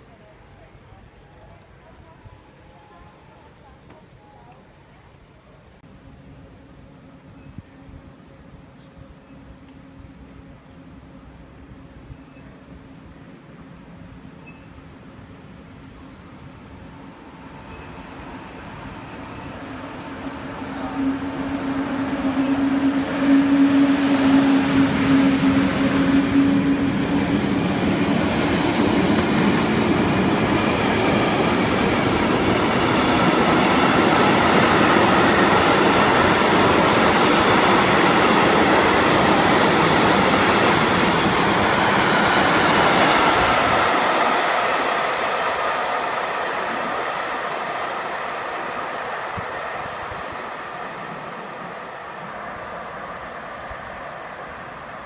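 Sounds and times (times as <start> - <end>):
train passing: 0.0 - 55.0
wheels rushing on rail: 5.8 - 55.0
steady train horn tone: 17.6 - 31.1.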